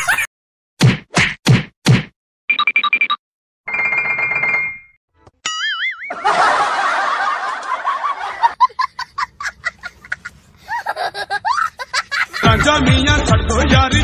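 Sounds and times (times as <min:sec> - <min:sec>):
snickering: 0:06.2 - 0:12.8
sliding squeaky laughs: 0:08.3 - 0:12.8.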